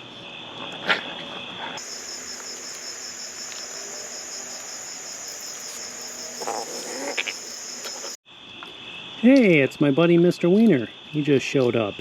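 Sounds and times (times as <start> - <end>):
crickets chirping: 1.8 - 8.2.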